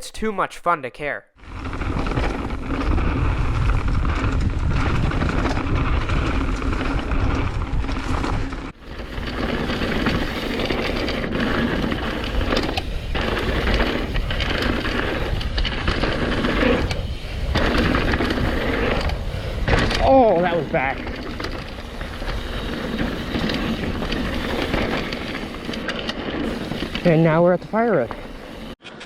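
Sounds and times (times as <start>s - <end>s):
bike knocking and rattling: 1.4s - 29.0s
bike tyres rolling over dirt: 1.4s - 29.0s
wind buffeting microphone: 1.6s - 8.6s.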